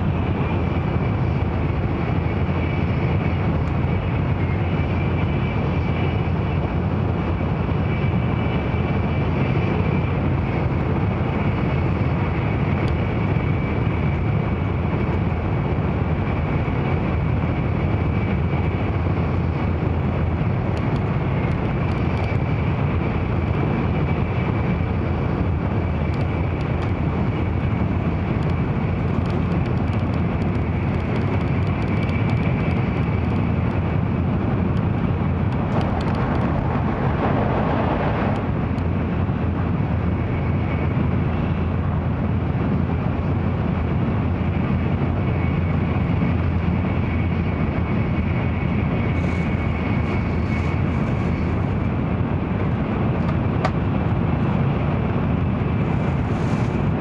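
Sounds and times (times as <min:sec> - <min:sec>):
rushing noise: 0:24.2 - 0:41.2
train cabin rumbling: 0:25.6 - 0:40.1.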